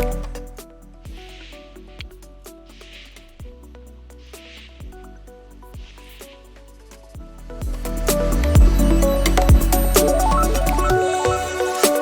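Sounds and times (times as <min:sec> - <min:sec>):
synth notes: 0:07.5 - 0:12.0.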